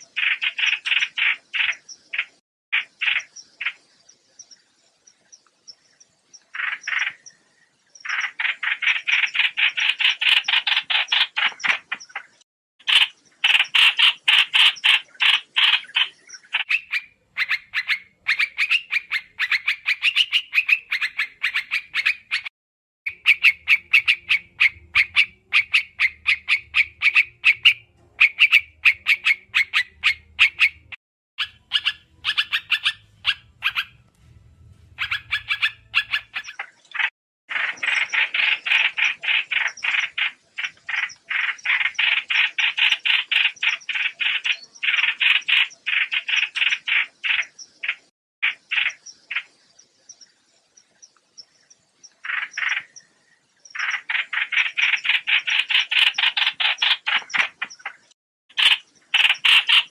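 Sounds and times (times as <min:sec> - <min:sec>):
bird calls short sharp notes: 0:23.1 - 0:40.1
low hum: 0:31.5 - 0:36.5.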